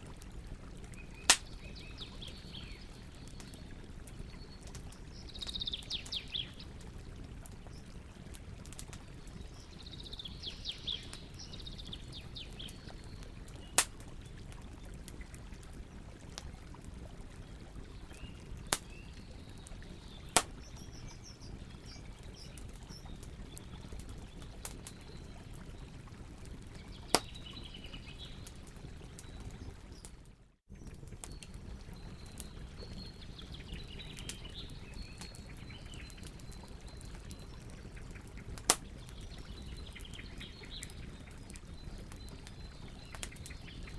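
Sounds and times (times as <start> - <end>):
campfire crackling: 0.0 - 43.9
campfire popping: 0.0 - 43.9
birds chirping: 0.9 - 6.8, 26.7 - 30.1.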